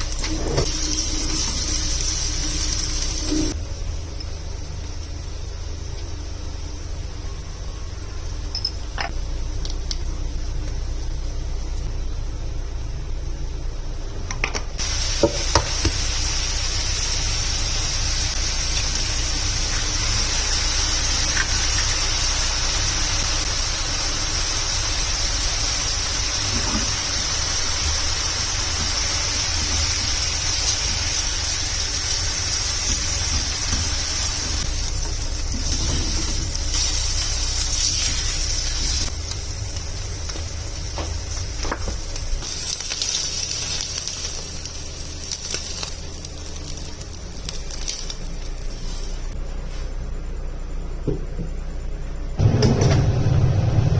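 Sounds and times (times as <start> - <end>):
food sizzling in a pan: 0.0 - 3.6, 14.8 - 49.4.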